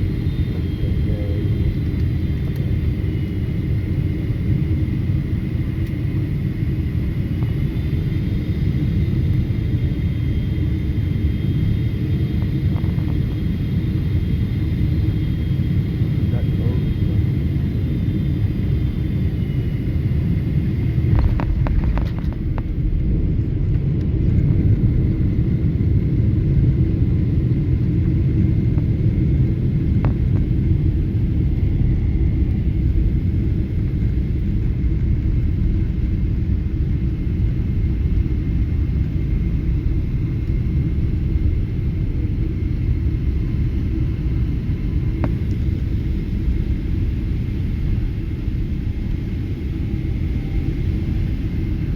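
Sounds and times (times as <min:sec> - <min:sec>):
vehicle rumble: 0:21.0 - 0:25.0.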